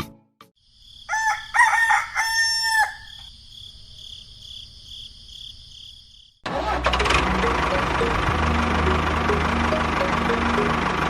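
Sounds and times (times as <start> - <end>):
rooster crowing: 1.0 - 3.3
high-pitched background tone: 7.1 - 11.0.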